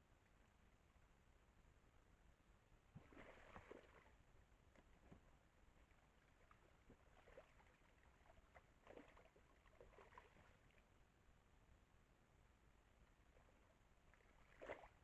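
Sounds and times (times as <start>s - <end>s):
faint rustles and soft ticks: 3.5s - 11.0s.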